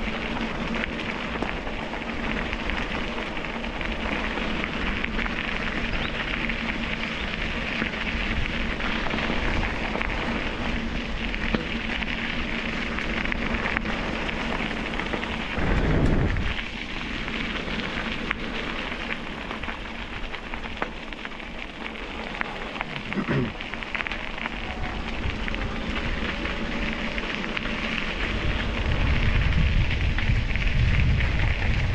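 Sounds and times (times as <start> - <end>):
tyre noise on rough path: 0.0 - 31.9
low rumble: 8.1 - 20.8
wind buffeting microphone: 12.6 - 20.8, 24.2 - 31.9.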